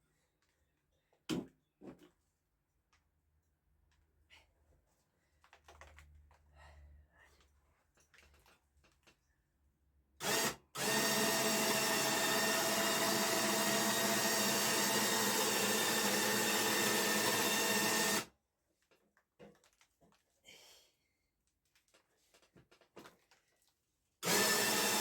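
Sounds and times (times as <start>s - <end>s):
power tool motor running: 10.2s - 18.3s, 24.2s - 25.0s.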